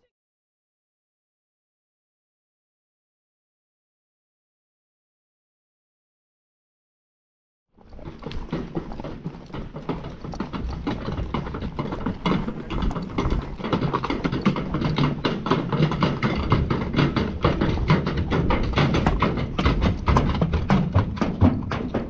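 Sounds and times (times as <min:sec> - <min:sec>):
horse hoofbeats: 0:07.8 - 0:22.0.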